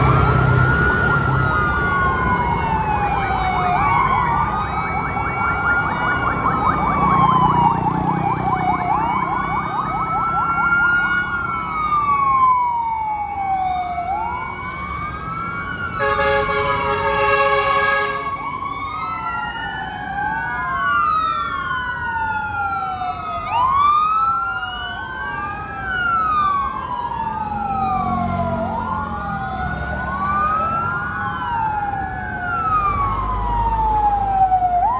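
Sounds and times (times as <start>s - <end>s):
fire truck sirens wailing: 0.0s - 34.9s
horn blast: 16.0s - 18.3s.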